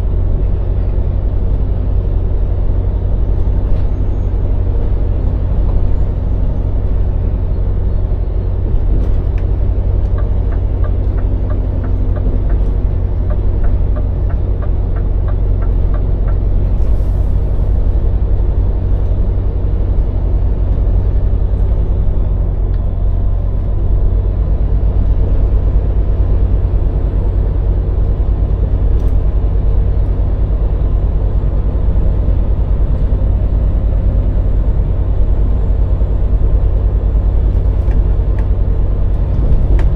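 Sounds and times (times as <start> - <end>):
diesel engine rumble: 0.0 - 39.9
turn indicator ticking: 9.4 - 16.4.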